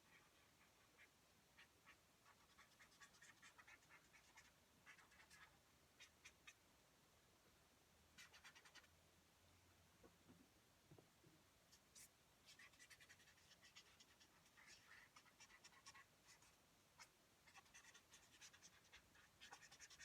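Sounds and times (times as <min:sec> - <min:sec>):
marker scratching on paper: 0:02.3 - 0:05.6, 0:08.2 - 0:08.9, 0:11.7 - 0:20.0.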